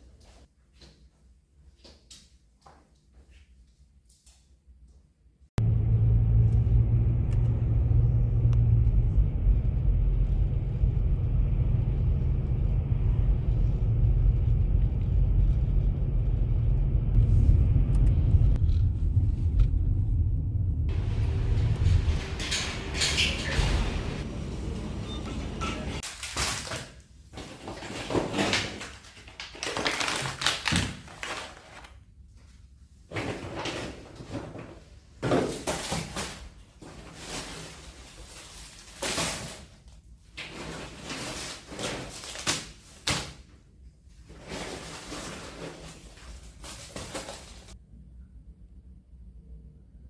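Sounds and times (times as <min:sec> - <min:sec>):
rustling of things moved: 0:25.4 - 0:47.8.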